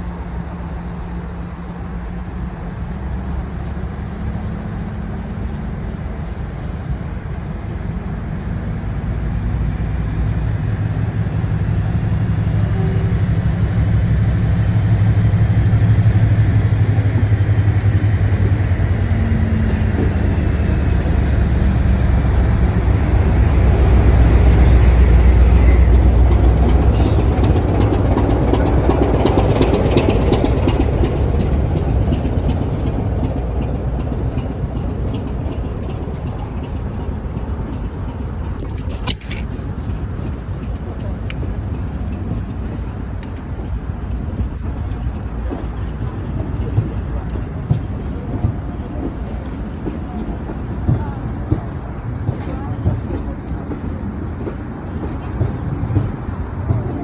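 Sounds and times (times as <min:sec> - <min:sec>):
diesel locomotives pulling away: 0:00.0 - 0:57.0
clatter: 0:23.4 - 0:57.0.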